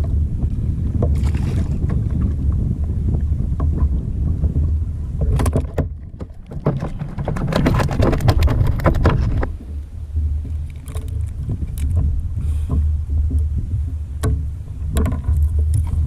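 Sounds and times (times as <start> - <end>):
wind rumbling on microphone: 0.0 - 16.0
sharp clicks and knocks: 5.2 - 9.8, 14.2 - 16.0.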